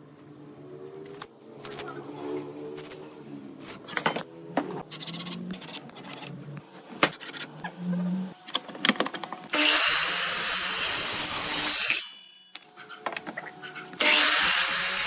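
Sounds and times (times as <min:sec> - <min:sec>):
power tool cutting wood: 0:09.5 - 0:12.1, 0:14.0 - 0:15.0.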